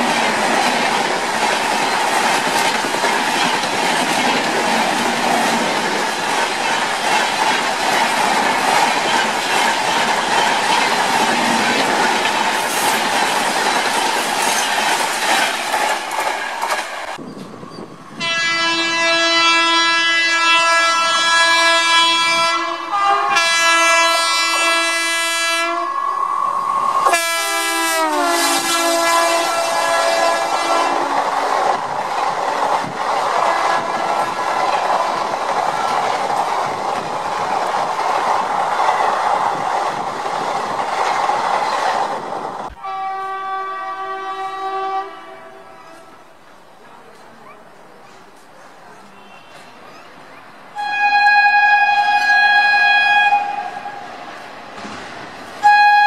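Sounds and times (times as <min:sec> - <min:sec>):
train wheels rattling on track: 0:00.0 - 0:18.4, 0:26.5 - 0:56.0
locomotive horn blasts: 0:18.2 - 0:26.3, 0:27.0 - 0:31.2, 0:42.8 - 0:46.1, 0:50.8 - 0:54.0, 0:55.6 - 0:56.0.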